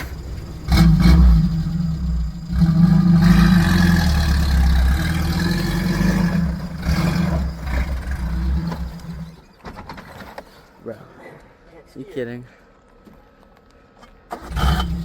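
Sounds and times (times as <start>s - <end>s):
off-road vehicle engine under load: 0.0s - 9.5s, 14.3s - 15.0s.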